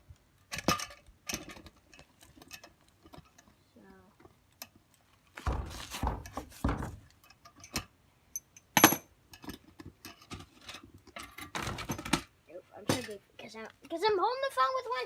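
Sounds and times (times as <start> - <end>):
sharp knock: 5.4 - 7.0
bird feeder clunks and scrapes: 9.4 - 12.3.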